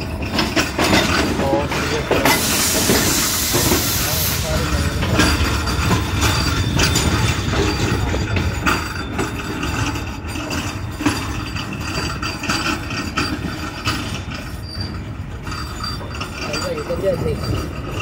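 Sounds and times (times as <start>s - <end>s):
sharp clanks and knocks: 0.0s - 18.0s
train wheels rumbling on rails: 0.0s - 18.0s.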